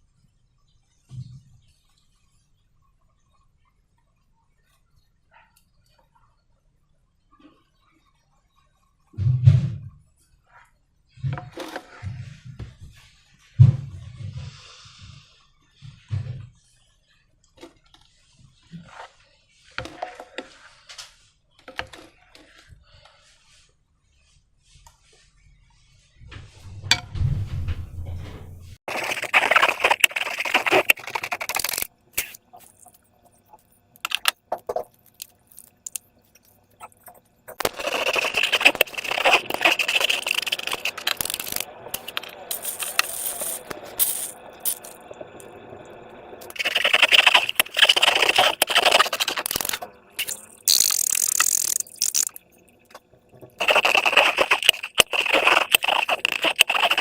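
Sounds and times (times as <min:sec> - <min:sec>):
slime squishing by hand: 0:28.9 - 0:45.0, 0:46.4 - 0:52.4, 0:53.6 - 0:57.0.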